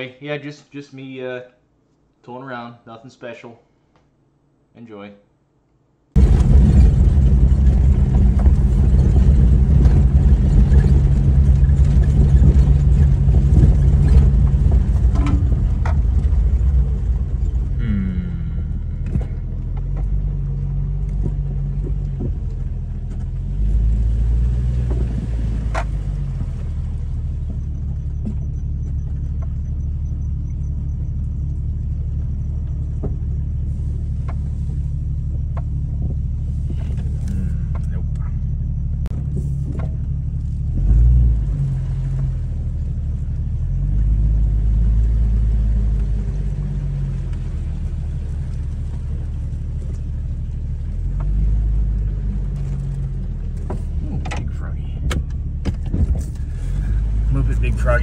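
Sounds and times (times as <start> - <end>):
car engine rumble: 6.1 - 58.0
clicks and knocks: 9.8 - 16.4.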